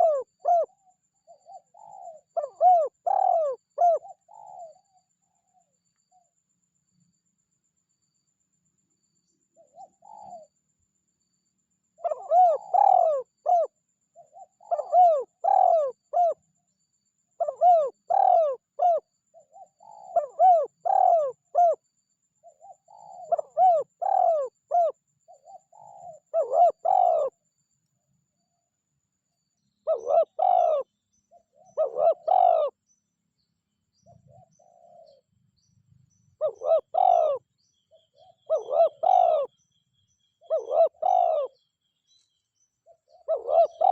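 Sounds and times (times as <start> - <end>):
dove cooing: 0.0 - 5.0, 9.6 - 10.5, 12.0 - 16.4, 17.4 - 21.8, 22.4 - 27.4, 29.8 - 32.8, 34.1 - 35.2, 36.4 - 39.5, 40.4 - 41.6, 42.9 - 43.9.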